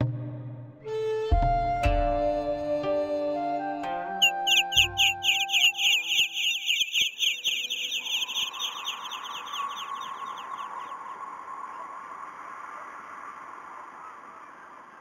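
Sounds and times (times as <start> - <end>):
small birds chirping: 4.2 - 12.1.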